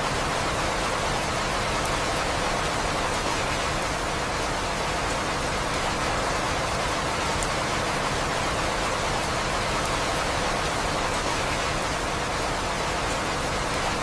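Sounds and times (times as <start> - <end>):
steady rainfall: 0.0 - 14.0.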